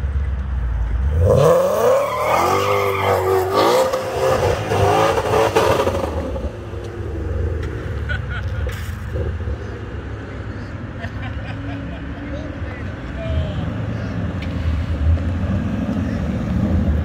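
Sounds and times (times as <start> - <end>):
car engine revving: 1.0 - 8.0.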